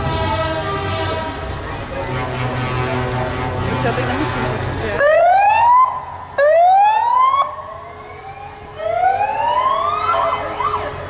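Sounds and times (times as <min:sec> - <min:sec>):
vehicle siren rising sweeps: 0:05.0 - 0:11.0.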